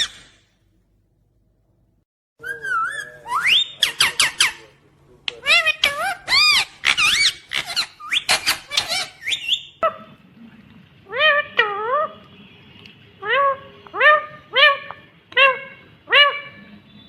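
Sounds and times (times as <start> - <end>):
parakeet squawking: 0.0 - 0.4, 2.4 - 10.2, 11.1 - 12.6, 13.2 - 17.0.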